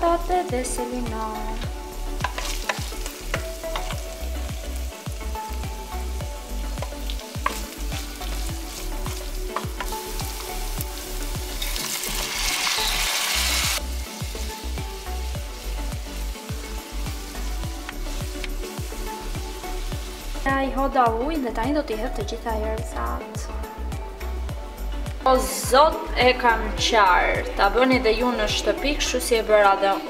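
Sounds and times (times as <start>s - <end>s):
meat and vegetables sizzling in a pot: 0.1s - 20.9s.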